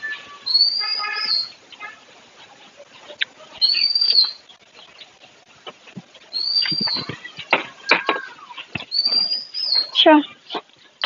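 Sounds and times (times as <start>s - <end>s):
bird whistled call: 0.0s - 1.8s, 3.6s - 4.4s, 6.3s - 7.2s, 8.9s - 10.0s.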